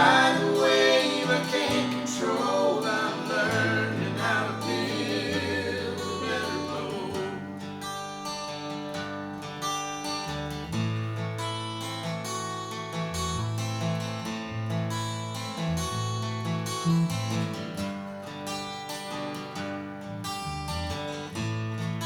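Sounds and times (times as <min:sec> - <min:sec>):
acoustic guitar strumming and picking: 0:00.0 - 0:22.0.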